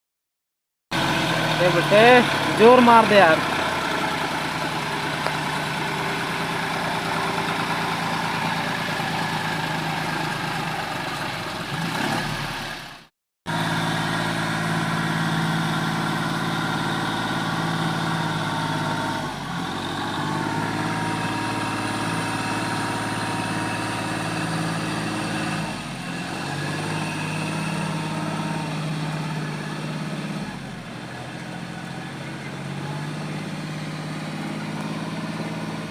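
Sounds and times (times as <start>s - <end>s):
tractor diesel engine running: 0.9s - 35.9s.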